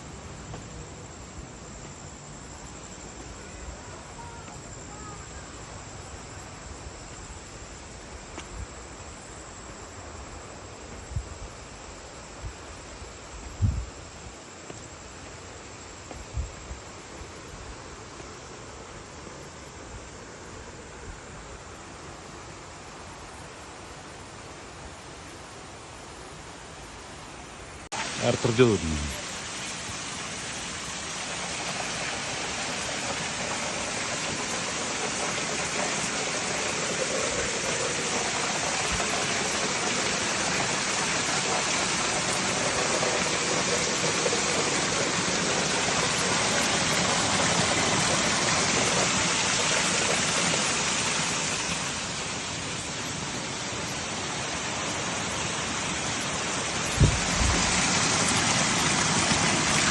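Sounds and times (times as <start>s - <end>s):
waterfall roar: 27.8s - 59.9s.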